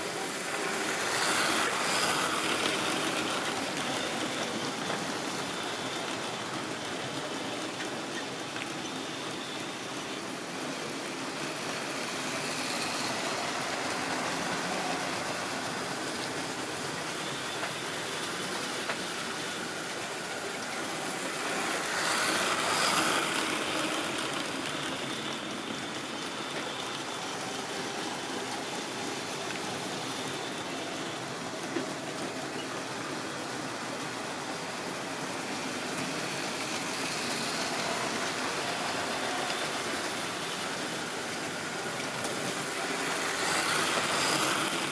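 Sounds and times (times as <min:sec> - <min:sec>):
model train whirring and rolling: 0:00.0 - 0:44.9
wheels clicking on rails: 0:00.0 - 0:44.9.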